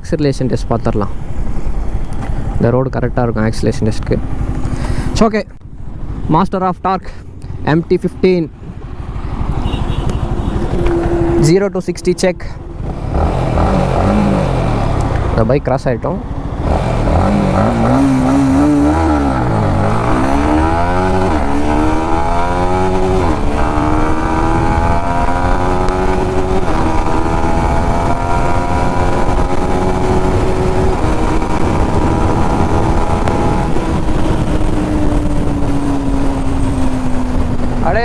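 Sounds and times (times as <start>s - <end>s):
motorcycle engine at full throttle: 3.6s - 6.3s, 8.8s - 38.0s
wind rush over microphone: 16.4s - 38.0s.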